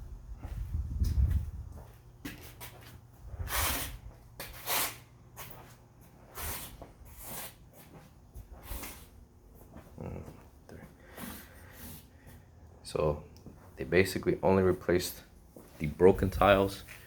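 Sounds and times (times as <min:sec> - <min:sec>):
person breathing close to microphone: 0:10.0 - 0:12.7.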